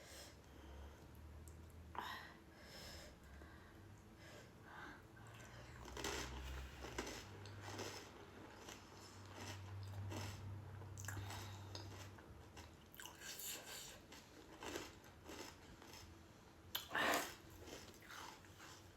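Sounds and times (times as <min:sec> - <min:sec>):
crisp snack crunching: 0:05.8 - 0:10.4, 0:11.0 - 0:13.4, 0:14.1 - 0:16.1.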